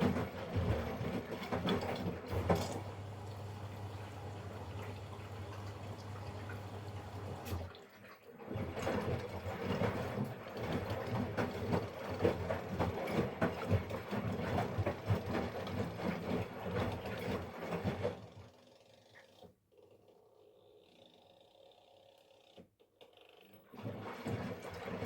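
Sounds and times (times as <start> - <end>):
toys sloshing and knocking in water: 0.0 - 3.5, 7.4 - 19.5, 23.6 - 25.0.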